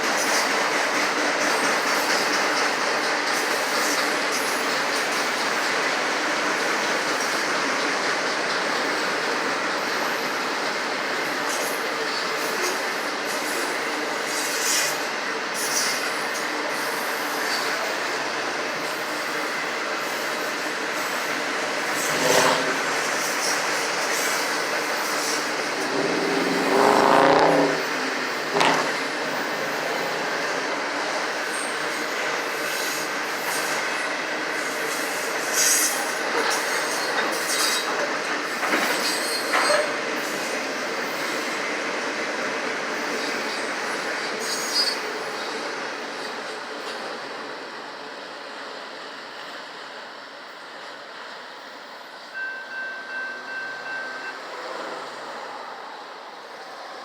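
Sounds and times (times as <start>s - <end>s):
train wheels rumbling on rails: 0.0s - 57.0s
train car clank: 21.8s - 30.8s, 35.6s - 40.0s
wheels squealing: 21.8s - 30.8s.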